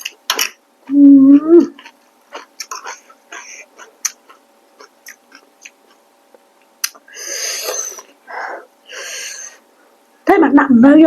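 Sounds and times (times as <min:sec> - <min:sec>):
wet mouth clicks of chewing: 0:01.8 - 0:03.4, 0:04.0 - 0:06.0, 0:06.8 - 0:07.0.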